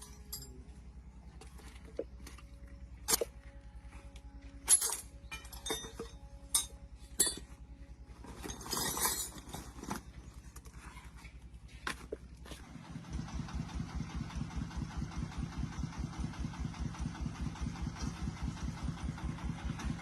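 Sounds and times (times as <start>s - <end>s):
metallic clinks of tools: 0.0s - 0.7s, 4.6s - 7.5s, 8.4s - 9.7s
engine idling: 0.0s - 20.0s.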